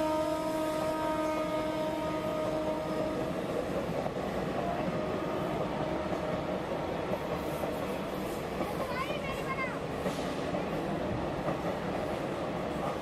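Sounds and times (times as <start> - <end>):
train horn: 0.0 - 3.6, 4.8 - 6.6
train wheels rumbling: 0.0 - 13.0.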